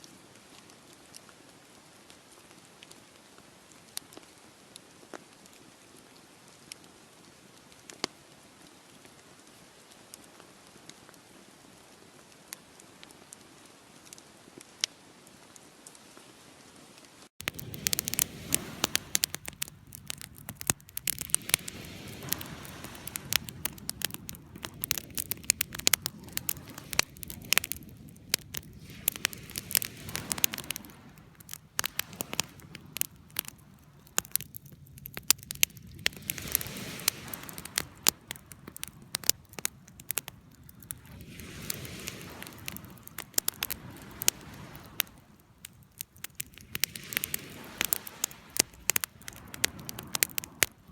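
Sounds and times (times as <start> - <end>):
campfire crackling and popping: 0.0 - 15.0, 17.4 - 50.9
flame rushing: 17.4 - 50.9.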